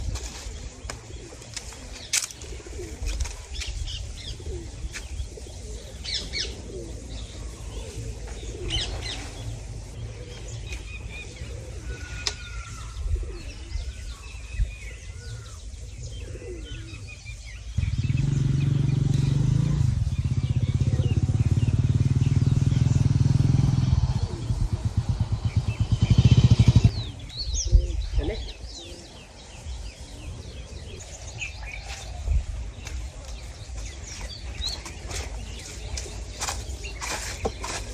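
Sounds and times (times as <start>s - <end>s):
small birds chirping: 0.0s - 37.9s
loud engine running: 17.8s - 26.9s.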